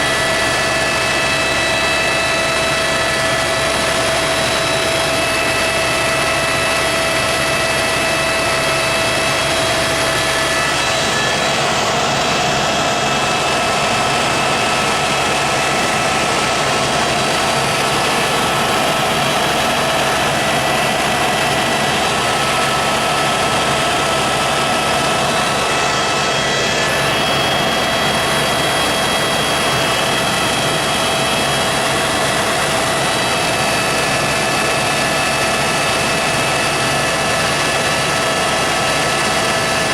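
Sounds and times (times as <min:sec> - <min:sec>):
helicopter rotor and engine noise: 0:00.0 - 0:39.9
high whine: 0:00.0 - 0:39.9.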